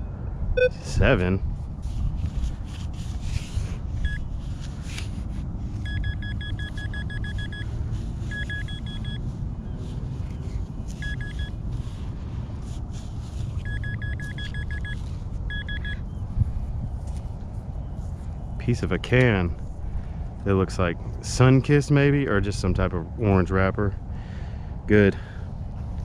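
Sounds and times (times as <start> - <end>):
steady low rumble: 0.0 - 26.0
metal detector pinpointer beeping: 0.6 - 0.8, 5.8 - 7.7, 8.3 - 9.2, 11.0 - 11.6, 13.6 - 16.0.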